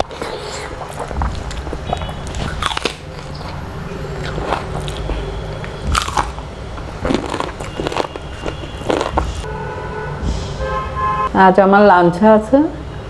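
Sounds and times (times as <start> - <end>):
person chewing crisp food: 0.0 - 9.5
sharp crunches: 1.0 - 3.3, 4.2 - 6.4, 7.0 - 9.4.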